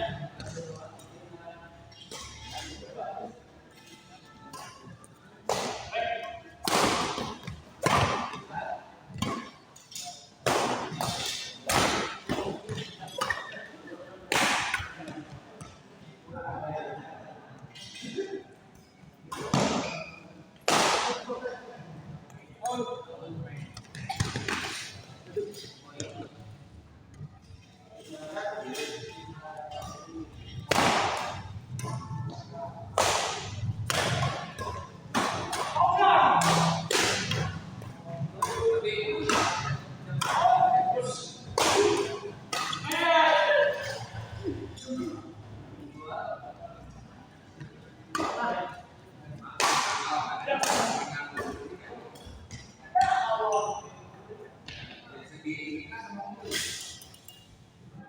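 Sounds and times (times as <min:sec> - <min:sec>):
rackets hitting shuttlecock: 0:05.5 - 0:08.5, 0:09.1 - 0:13.6, 0:14.3 - 0:15.1, 0:19.3 - 0:21.3, 0:23.8 - 0:25.0, 0:29.7 - 0:44.2, 0:49.6 - 0:51.6
badminton racket hitting shuttlecock: 0:33.0 - 0:37.6.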